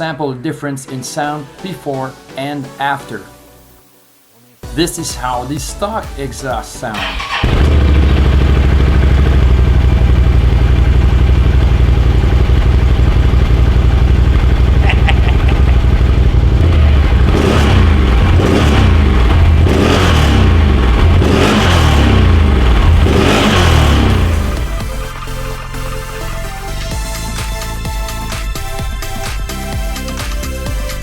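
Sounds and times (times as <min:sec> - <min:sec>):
atv engine idling and revving: 0:07.0 - 0:31.0.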